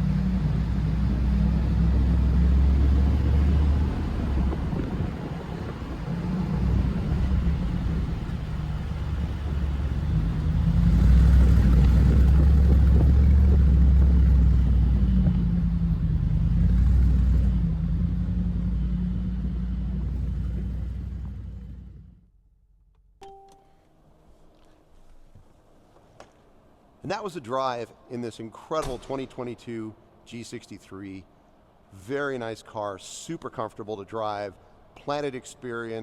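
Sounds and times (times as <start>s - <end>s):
car engine and exhaust running: 0.0s - 22.2s.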